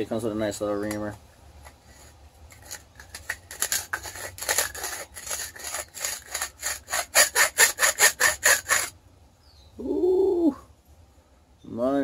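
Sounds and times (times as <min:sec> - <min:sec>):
reamer scraping metal pipe: 0:01.8 - 0:08.9.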